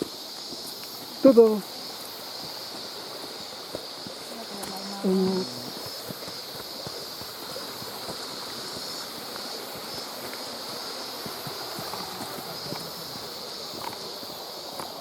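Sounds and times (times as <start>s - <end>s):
high-pitched hiss: 0.0s - 15.0s
stream water rushing: 0.0s - 15.0s.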